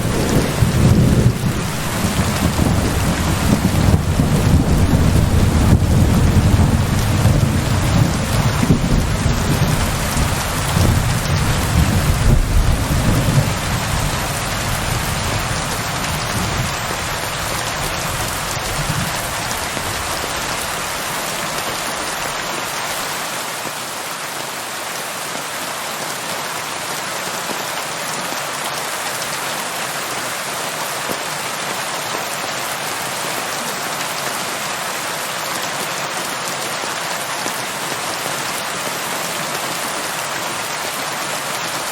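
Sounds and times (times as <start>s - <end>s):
thunder rumble: 0.0s - 20.7s
steady rain hiss: 0.0s - 41.9s.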